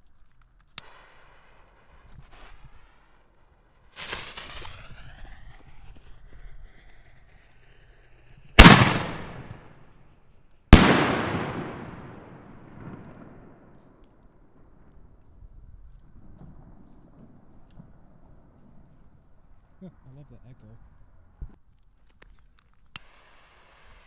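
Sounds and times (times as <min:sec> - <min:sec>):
firework rushing noise: 0:04.0 - 0:09.7, 0:10.8 - 0:13.5
firework shell bangs echoing: 0:08.6 - 0:09.6, 0:10.8 - 0:13.5.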